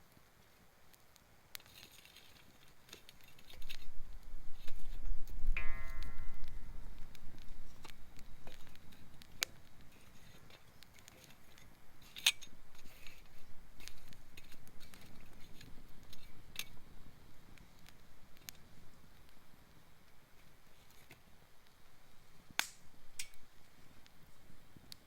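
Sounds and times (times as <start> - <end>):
campfire crackling: 0.0 - 25.0
sharp pops of fire: 0.9 - 21.8, 22.4 - 24.2
low rumble: 5.5 - 8.4.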